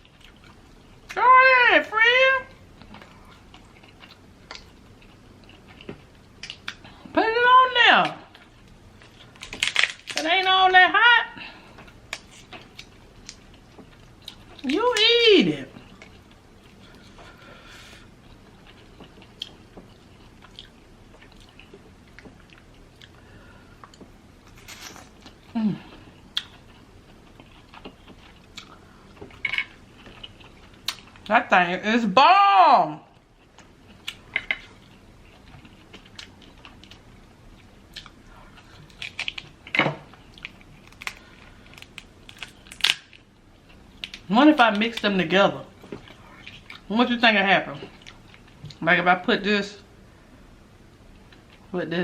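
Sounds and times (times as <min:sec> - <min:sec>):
person chewing seafood: 0:02.8 - 0:06.9, 0:15.8 - 0:24.2, 0:25.2 - 0:31.3, 0:33.2 - 0:44.3.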